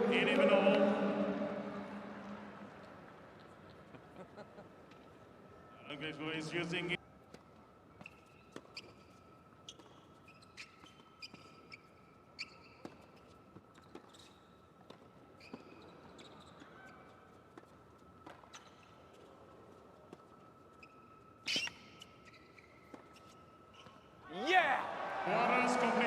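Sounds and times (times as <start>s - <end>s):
faint high hum: 0.0s - 3.1s
shoes squeaking on court: 8.0s - 24.2s.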